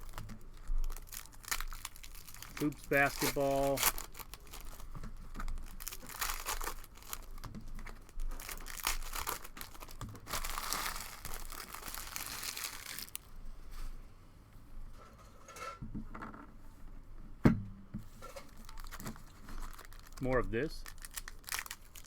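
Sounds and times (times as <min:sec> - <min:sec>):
plastic wrappers crinkling and tearing: 0:00.0 - 0:13.3, 0:18.2 - 0:22.0.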